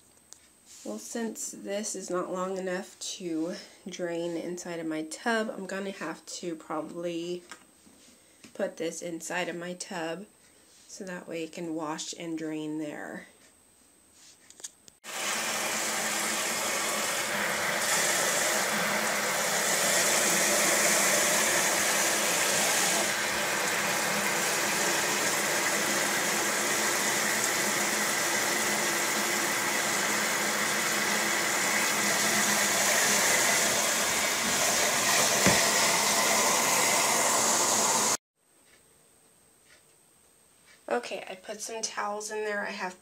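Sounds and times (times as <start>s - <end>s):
tap water running into plastic tub: 15.1s - 38.2s.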